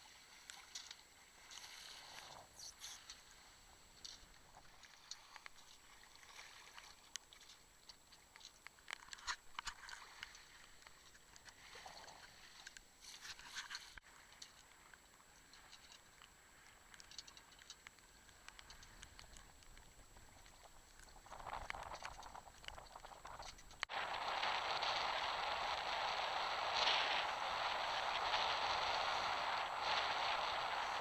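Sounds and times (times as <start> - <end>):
water patter and splashes: 0.0 - 31.0.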